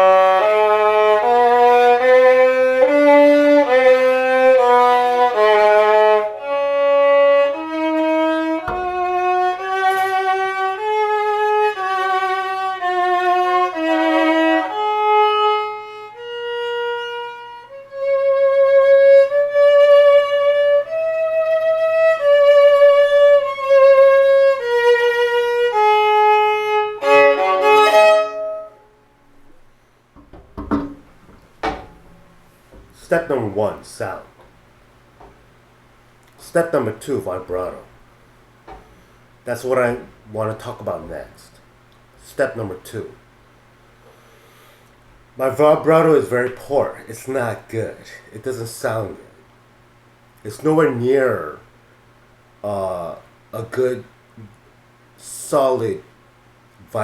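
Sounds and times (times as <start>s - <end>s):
solo violin bowed: 0.0s - 29.6s.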